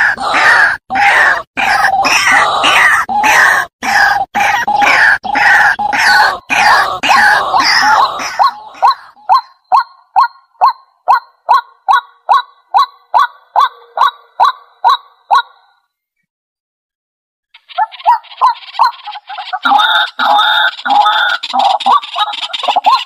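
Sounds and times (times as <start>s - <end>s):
bird harsh croaks: 0.0s - 15.9s, 17.5s - 23.0s.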